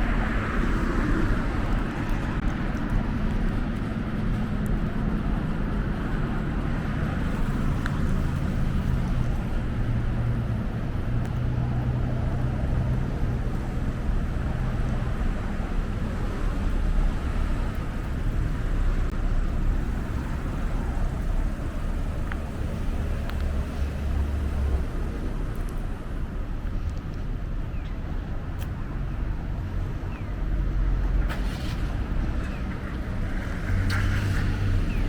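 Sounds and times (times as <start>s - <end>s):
low engine hum: 0.0s - 35.0s
road traffic rumble: 0.0s - 35.0s.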